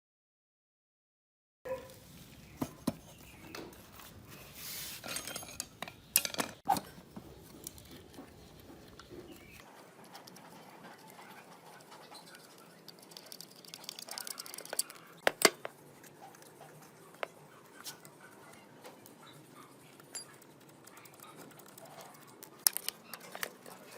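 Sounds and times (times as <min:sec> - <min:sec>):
metal parts clicking and knocking: 0:05.0 - 0:09.6, 0:12.8 - 0:15.7, 0:22.4 - 0:23.7.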